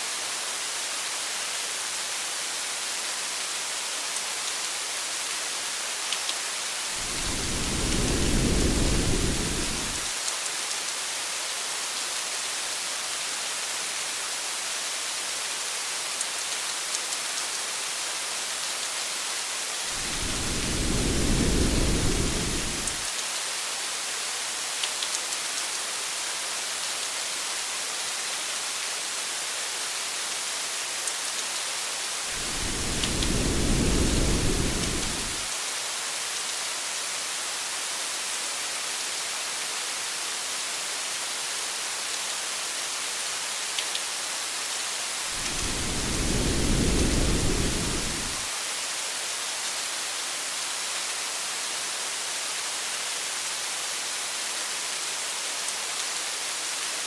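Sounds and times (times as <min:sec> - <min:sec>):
rain hissing: 0:06.8 - 0:10.2, 0:19.8 - 0:23.2, 0:32.2 - 0:35.6, 0:45.2 - 0:48.6
low rolls of thunder: 0:07.0 - 0:10.1, 0:19.9 - 0:23.0, 0:32.3 - 0:35.5, 0:45.4 - 0:48.5.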